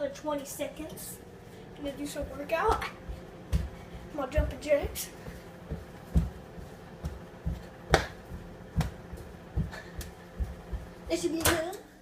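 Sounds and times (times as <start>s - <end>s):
feet thumping on floor: 2.2s - 11.7s.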